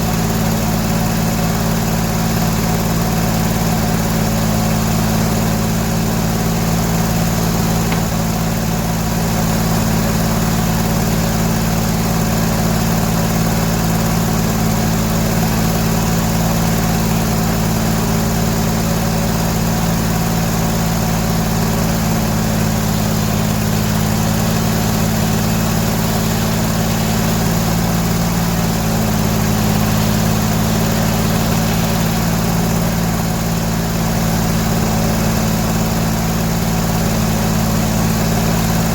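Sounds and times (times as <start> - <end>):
engine droning: 5.0 - 14.6, 20.2 - 38.9.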